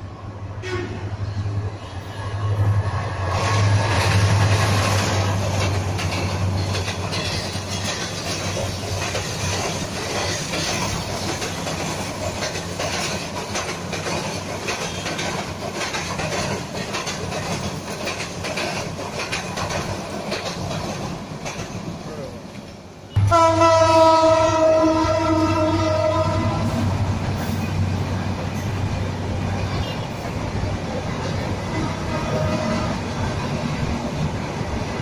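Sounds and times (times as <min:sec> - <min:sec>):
diesel locomotive engine drone: 0:00.0 - 0:35.0
train wheels clacking over rail joints: 0:03.3 - 0:23.5.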